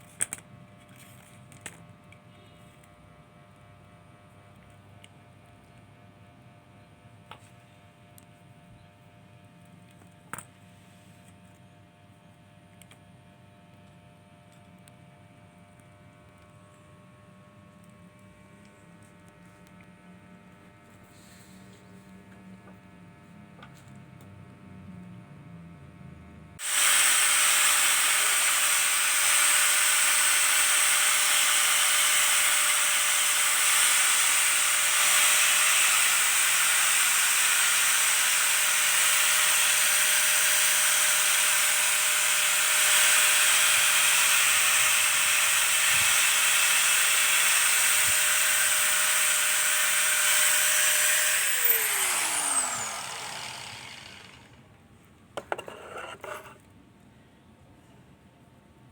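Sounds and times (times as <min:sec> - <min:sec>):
power tool cutting plastic pipe: 0:26.6 - 0:54.6.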